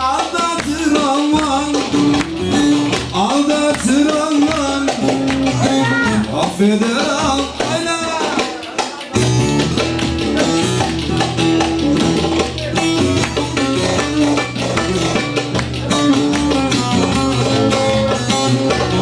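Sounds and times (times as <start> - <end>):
steady bass and beat: 1.4 - 19.0
plucked-string melody: 7.1 - 19.0.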